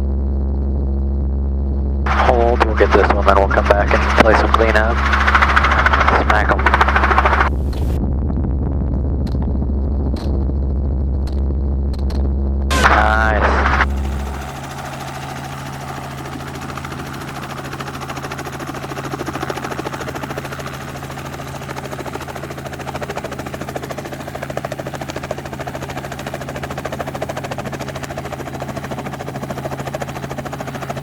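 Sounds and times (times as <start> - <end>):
helicopter rotor chop: 2.1 - 8.0, 12.7 - 31.0.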